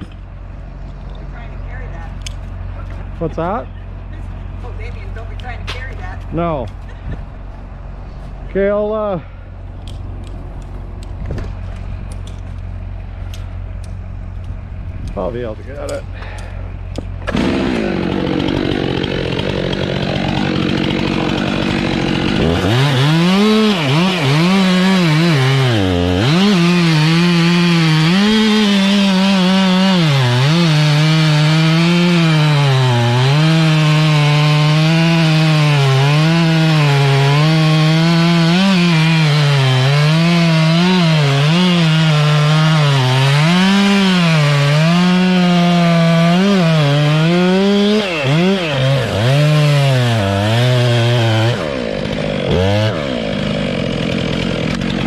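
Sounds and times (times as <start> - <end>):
chainsaw cutting wood: 16.2 - 55.0.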